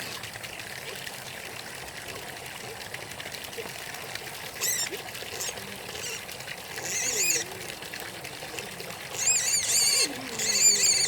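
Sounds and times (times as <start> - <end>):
water trickling: 0.0 - 11.0
high-pitched animal squeal: 4.6 - 6.2, 6.8 - 7.6, 9.1 - 11.0.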